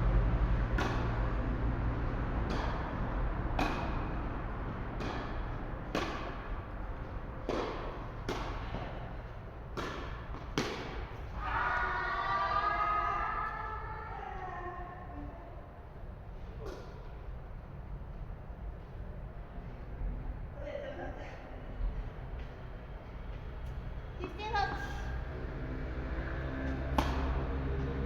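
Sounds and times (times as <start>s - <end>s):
tennis balls being struck: 0.5s - 11.4s, 26.6s - 28.0s.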